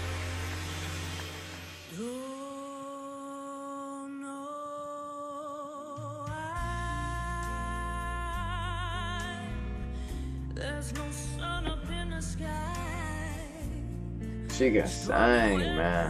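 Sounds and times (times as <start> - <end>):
low bass accompaniment: 0.0 - 1.8, 6.6 - 16.0
woman singing slow ballad: 1.8 - 14.5, 15.2 - 16.0.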